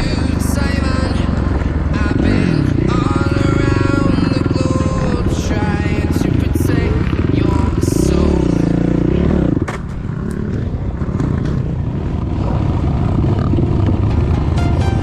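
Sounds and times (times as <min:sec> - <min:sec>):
engine clattering: 0:00.0 - 0:14.6
motorcycle engine revving: 0:00.0 - 0:15.0
music: 0:13.9 - 0:15.0.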